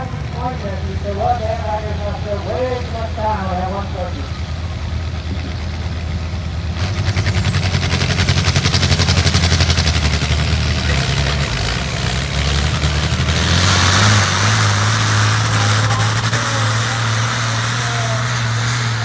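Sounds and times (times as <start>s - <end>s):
tractor engine working hard: 0.0s - 19.0s.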